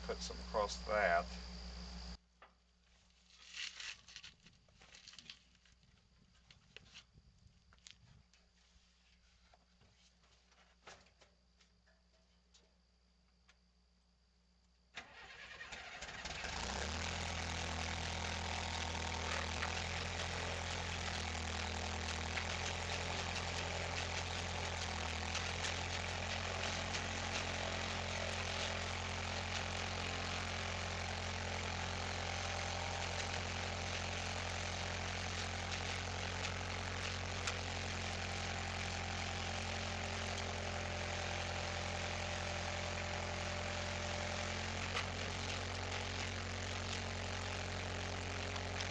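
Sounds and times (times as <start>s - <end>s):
engine starting and running: 0.0s - 2.2s, 15.0s - 48.9s
crackly rattle: 3.3s - 6.7s, 15.6s - 48.9s.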